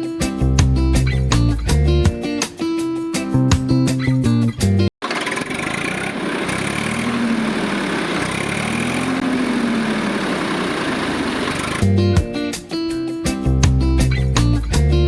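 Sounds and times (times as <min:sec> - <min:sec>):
small motor running: 0:05.0 - 0:11.8.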